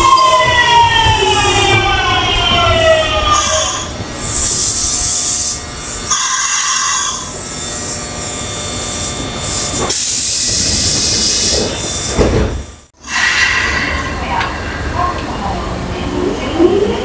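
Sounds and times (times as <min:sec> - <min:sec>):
train low rumble: 0:00.0 - 0:07.6, 0:08.7 - 0:17.0
air hissing bursts: 0:13.0 - 0:14.4.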